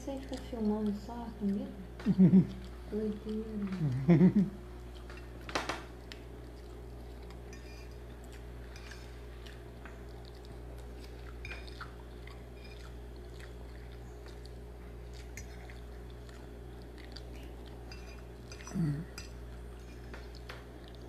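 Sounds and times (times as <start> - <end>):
steady low hum: 0.0 - 21.0
person chewing: 6.0 - 21.0.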